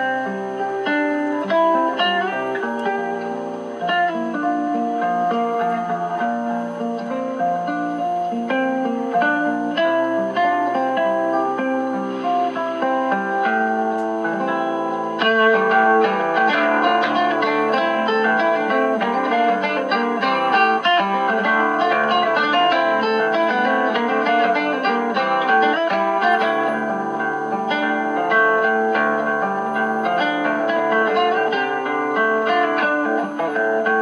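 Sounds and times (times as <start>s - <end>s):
acoustic guitar duo on radio: 0.0s - 34.0s
faint steady high tones: 0.0s - 34.0s.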